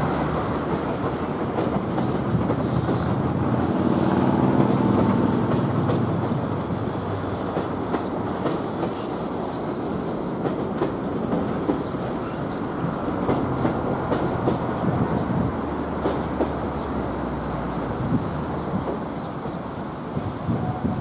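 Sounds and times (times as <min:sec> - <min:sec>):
train wheels clattering over rails: 0:00.0 - 0:21.0.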